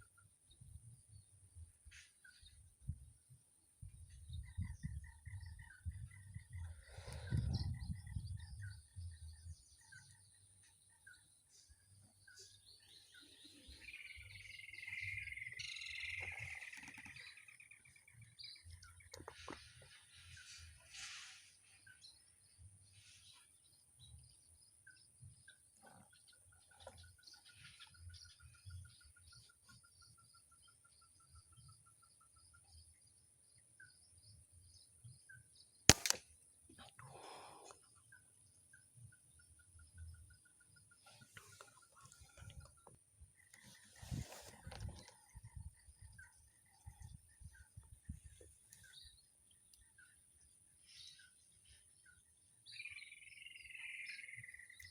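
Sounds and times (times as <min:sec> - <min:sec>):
air rifle shot crack: 0:35.9 - 0:36.3
short evenly spaced pips: 0:35.9 - 0:37.5.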